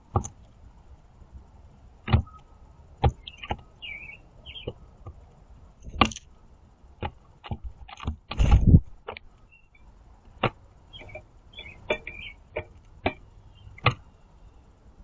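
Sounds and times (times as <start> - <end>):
birds scuffling: 0.0 - 14.7
squeaky bird calls: 3.2 - 4.8, 10.9 - 14.6
birds pecking on feeder: 7.0 - 14.2.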